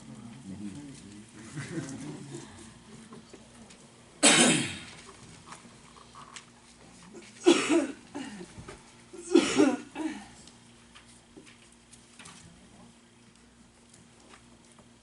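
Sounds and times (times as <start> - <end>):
person coughing: 4.2 - 4.9, 7.4 - 8.5, 9.2 - 10.3.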